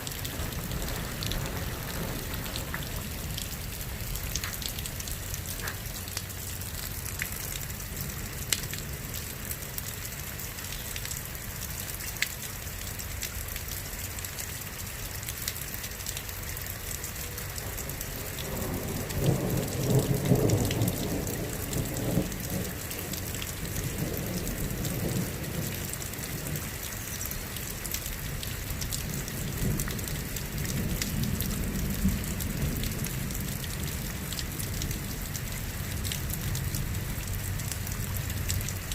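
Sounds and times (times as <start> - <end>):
thunder rumbling: 0.0 - 5.7, 17.7 - 26.6
rain with drops ticking: 0.0 - 38.9.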